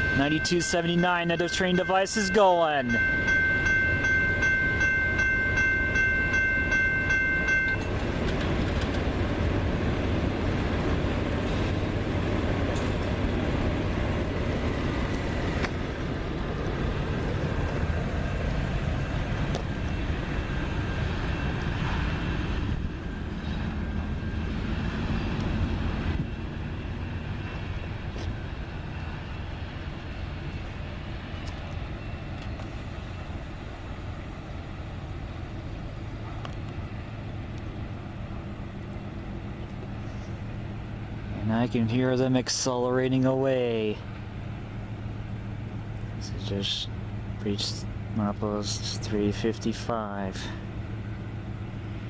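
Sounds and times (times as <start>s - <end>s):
high ringing tone: 0.0s - 8.4s, 18.3s - 33.2s
freight train rumbling past: 0.0s - 52.0s.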